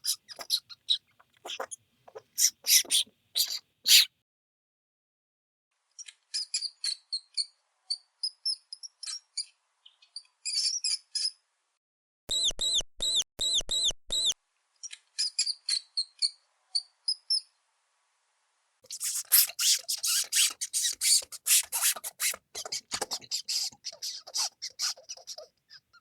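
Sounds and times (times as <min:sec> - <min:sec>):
mouse squeaking: 0:00.0 - 0:04.1, 0:18.9 - 0:26.0.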